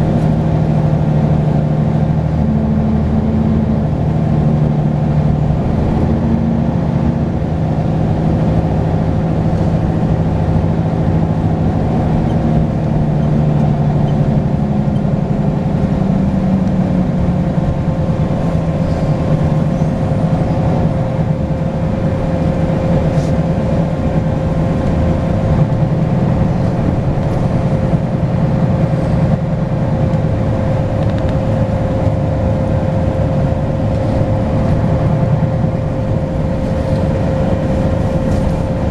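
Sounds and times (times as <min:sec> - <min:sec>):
bus diesel engine running: 0:00.0 - 0:38.9.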